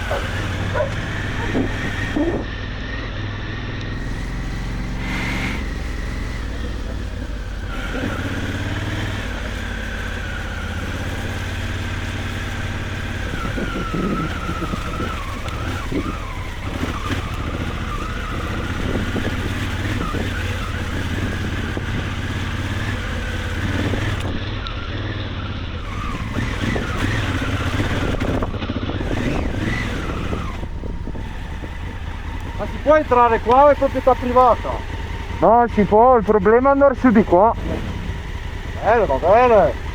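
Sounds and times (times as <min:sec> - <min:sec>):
wind noise: 0:00.0 - 0:02.6, 0:03.9 - 0:24.6, 0:25.8 - 0:33.5
motorcycle engine revving: 0:00.0 - 0:39.9.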